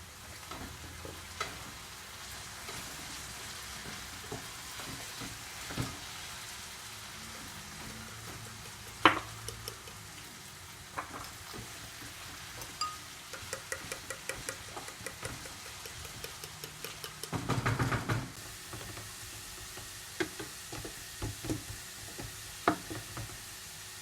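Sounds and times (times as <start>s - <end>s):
food sizzling in a pan: 0.0s - 24.0s
utensil scrapes and taps: 7.8s - 10.1s, 12.5s - 18.1s.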